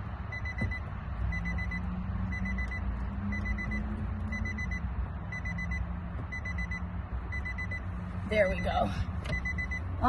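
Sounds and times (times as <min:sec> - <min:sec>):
car warning chime beeping: 0:00.2 - 0:10.0.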